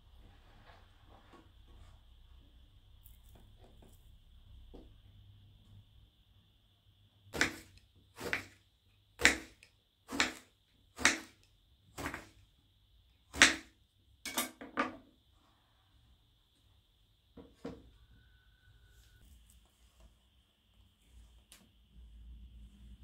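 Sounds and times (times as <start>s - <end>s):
faint high-pitched tone: 17.8s - 19.6s.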